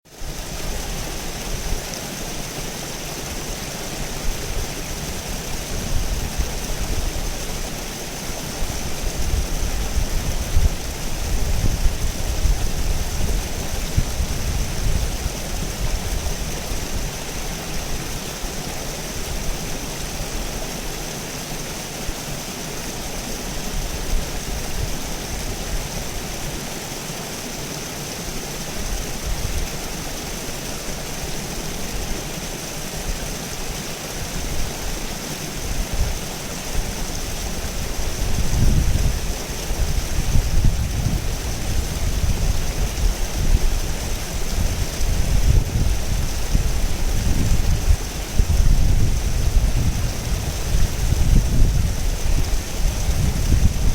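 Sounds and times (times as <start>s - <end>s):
river water rushing: 0.1s - 53.9s.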